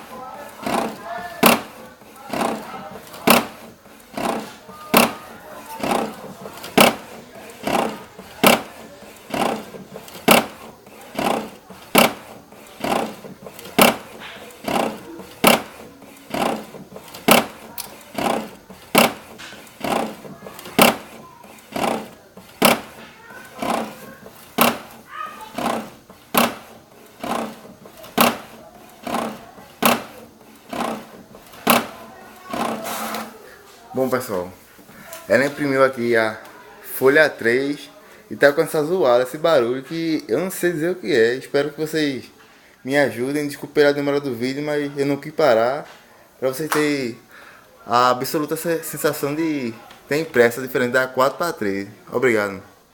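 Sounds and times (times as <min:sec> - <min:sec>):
printer knocking: 0:00.0 - 0:33.4
printer mechanical noise: 0:00.0 - 0:37.7.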